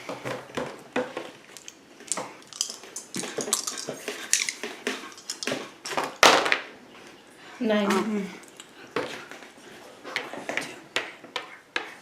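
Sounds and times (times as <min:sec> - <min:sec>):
dice rattling on a board: 0:01.6 - 0:05.6
game pieces clicking: 0:01.6 - 0:05.6.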